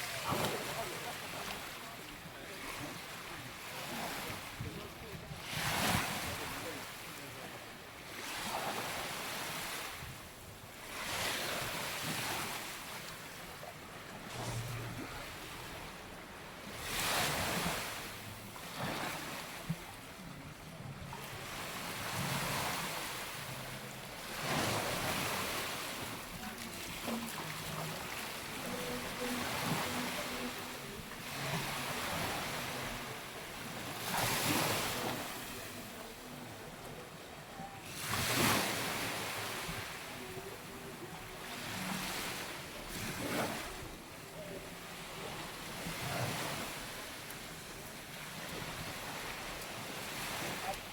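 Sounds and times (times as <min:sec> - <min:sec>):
waves washing on sandy beach: 0:00.0 - 0:50.9.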